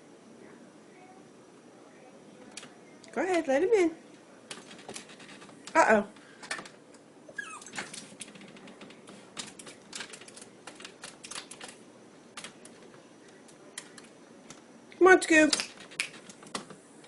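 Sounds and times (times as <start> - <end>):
dog whining: 7.3 - 8.0.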